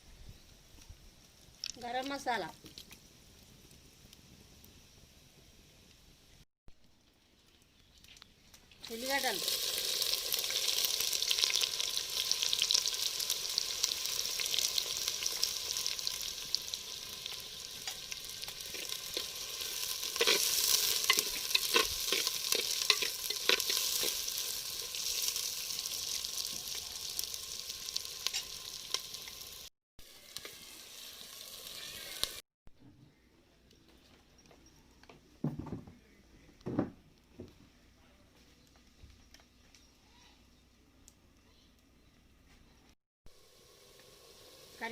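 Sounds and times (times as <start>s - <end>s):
onions sizzling in hot oil: 8.8s - 32.4s, 43.3s - 44.9s
spoon scraping a pan: 18.7s - 24.4s, 28.2s - 28.6s.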